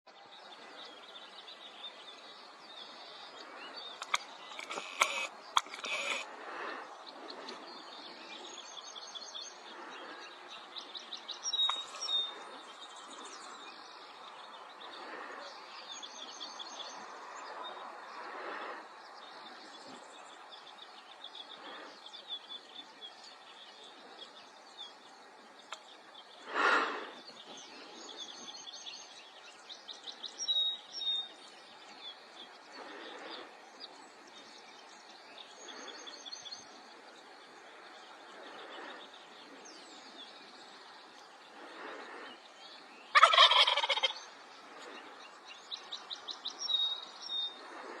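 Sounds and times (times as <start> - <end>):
small birds chirping faintly: 0.0 - 48.0
turkey gobbling: 43.1 - 44.2.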